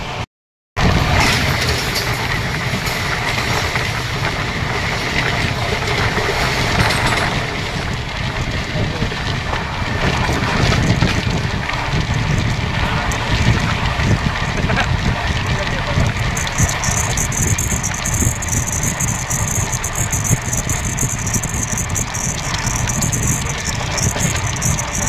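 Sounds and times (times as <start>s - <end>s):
train wheels rolling on rails: 0.8s - 14.2s, 15.4s - 25.0s
clicks and rattles: 5.8s - 7.9s, 16.0s - 25.0s.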